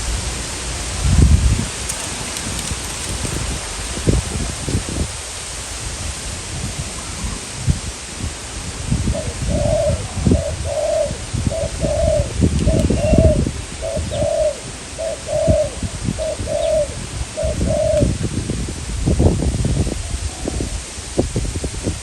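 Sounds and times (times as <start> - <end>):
wind buffeting microphone: 0.0 - 22.0
dove cooing: 1.9 - 5.2, 9.1 - 18.1.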